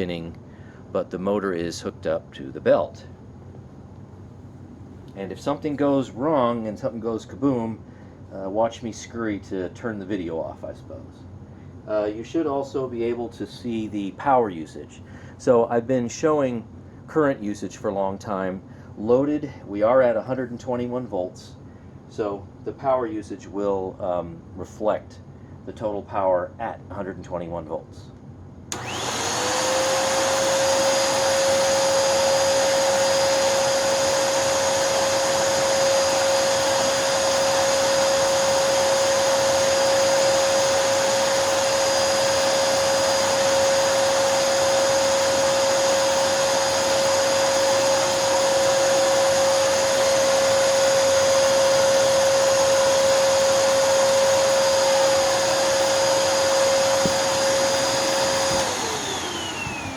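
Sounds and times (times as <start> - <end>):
vacuum motor whine: 28.7 - 59.9
exhaust air blowing on microphone: 56.5 - 59.9.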